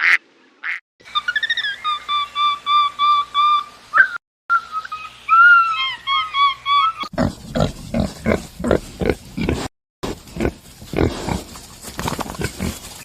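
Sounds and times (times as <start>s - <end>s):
waterfowl honking: 0.0s - 0.8s
pig grunting: 7.0s - 12.9s.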